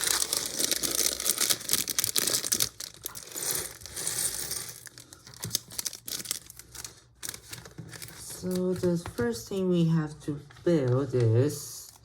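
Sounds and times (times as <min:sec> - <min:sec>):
plastic bags crinkling and tearing: 0:00.0 - 0:09.1.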